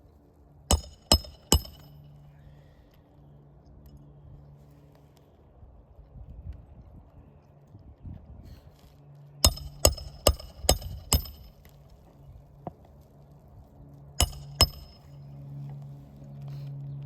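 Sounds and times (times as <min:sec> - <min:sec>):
hammer striking metal: 0:00.7 - 0:01.9, 0:09.4 - 0:11.5, 0:14.2 - 0:15.1.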